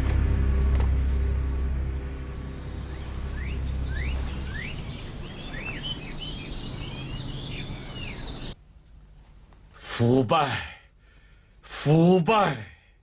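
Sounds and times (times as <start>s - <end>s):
low hum: 0.0s - 9.8s
songbirds chirping: 0.0s - 13.0s.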